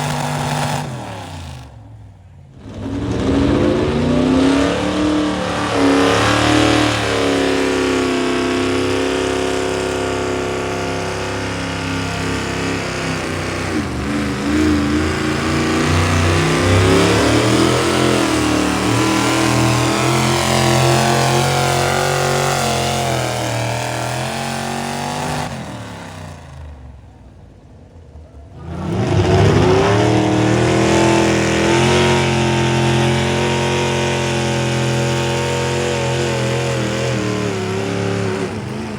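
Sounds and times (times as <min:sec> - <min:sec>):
vehicle engine running at high revs: 0:00.0 - 0:38.9.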